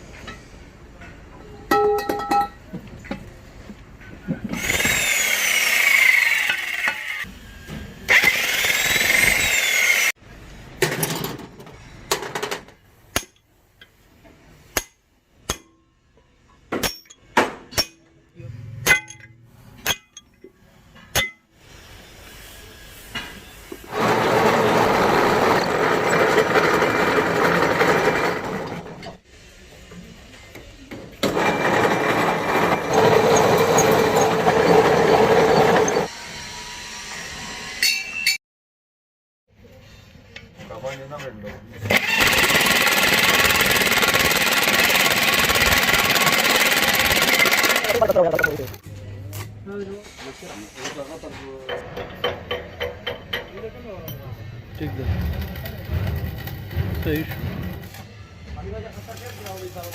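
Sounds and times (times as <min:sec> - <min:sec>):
rough machine noise: 0:04.5 - 0:10.2, 0:22.1 - 0:29.2, 0:31.2 - 0:37.8, 0:41.9 - 0:48.8, 0:54.6 - 0:59.9
grinder with sweeping whine: 0:04.6 - 0:10.2
sharp strikes on metal: 0:14.7 - 0:15.9, 0:16.7 - 0:18.1, 0:18.8 - 0:20.2.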